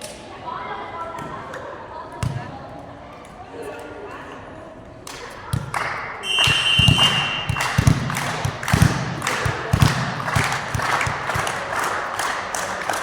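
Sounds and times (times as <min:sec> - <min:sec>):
crowd and player noise: 0:00.0 - 0:13.0
shrill whistle blast: 0:06.2 - 0:07.6.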